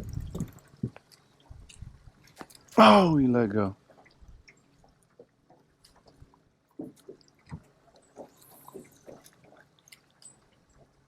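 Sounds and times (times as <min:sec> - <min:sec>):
water clicks and splashes: 0:00.0 - 0:11.0.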